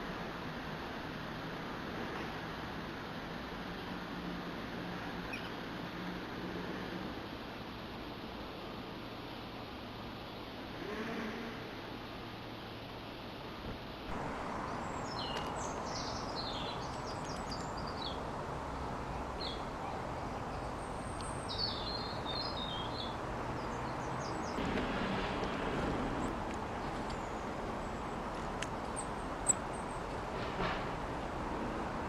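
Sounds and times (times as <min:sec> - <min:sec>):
city background hum: 0:00.0 - 0:32.0
songbird twittering: 0:14.6 - 0:18.2, 0:19.4 - 0:24.6.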